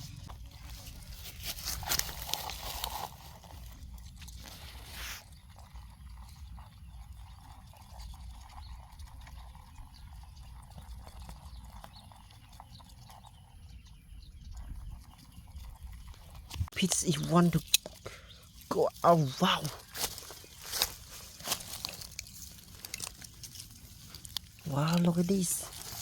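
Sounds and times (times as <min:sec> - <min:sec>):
rustling: 0:00.0 - 0:05.3, 0:17.8 - 0:26.0.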